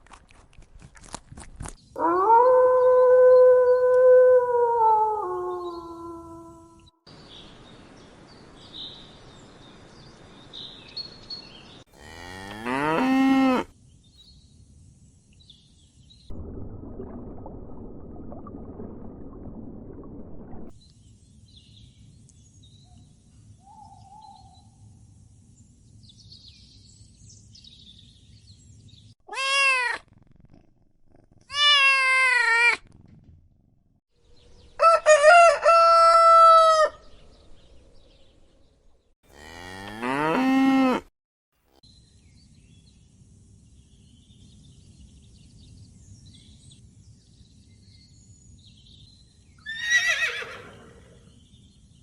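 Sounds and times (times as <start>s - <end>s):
low rumbling noise: 16.3s - 20.7s.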